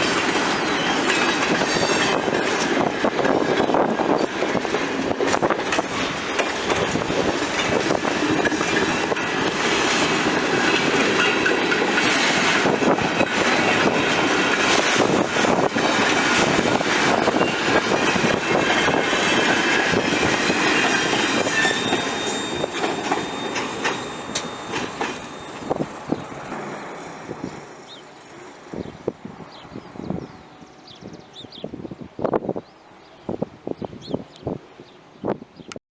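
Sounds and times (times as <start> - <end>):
train wheels clacking over rail joints: 0.0 - 27.7
high wheel squeal: 0.5 - 2.3, 16.7 - 28.0.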